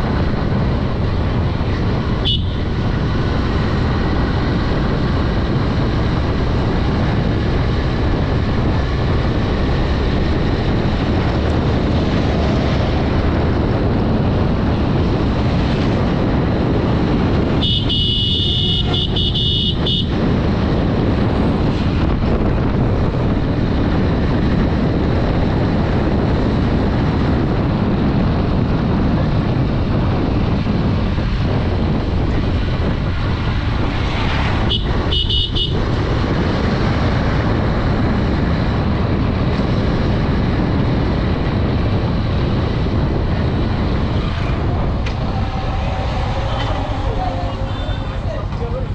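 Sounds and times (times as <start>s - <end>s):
motorcycle engine riding: 0.0s - 48.9s
wind and road noise: 0.0s - 48.9s
horn honking: 2.2s - 2.7s, 17.5s - 20.2s, 34.6s - 35.8s, 45.1s - 48.5s.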